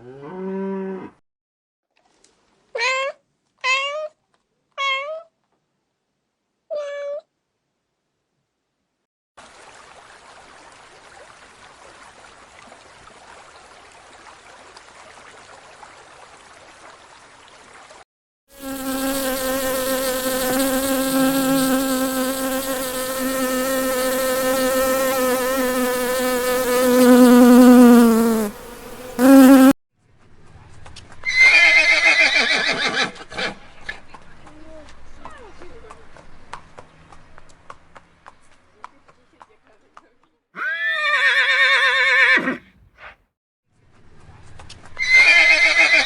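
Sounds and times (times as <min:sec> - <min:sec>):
flying insect buzzing: 0:18.5 - 0:29.8
horse whinnying: 0:31.3 - 0:33.6, 0:40.6 - 0:43.1, 0:45.0 - 0:46.0.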